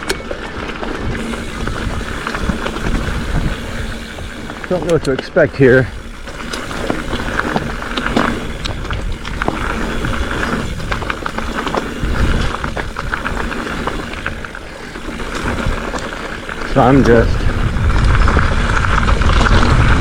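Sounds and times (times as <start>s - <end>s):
bike chain and frame clattering: 0.0s - 20.0s
bike tyres rolling on dirt: 0.0s - 20.0s
wind rumbling on microphone: 0.0s - 20.0s.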